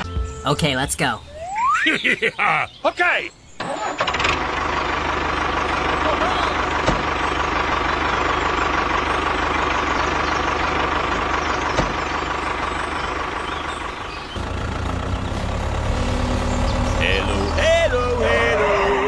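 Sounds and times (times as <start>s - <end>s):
engine running and idling: 3.6s - 19.0s.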